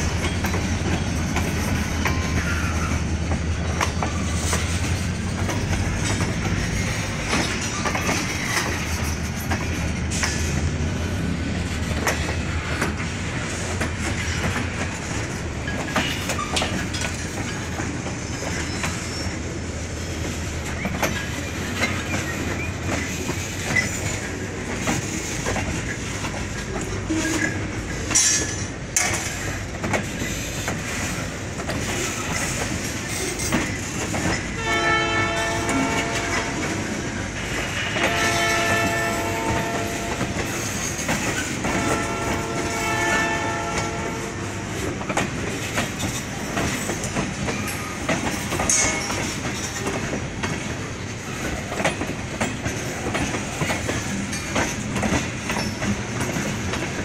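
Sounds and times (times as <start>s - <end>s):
train rumble and wheel clatter: 0.0s - 57.0s
locomotive air horn blasts: 34.6s - 36.8s, 37.8s - 40.4s, 41.6s - 44.8s.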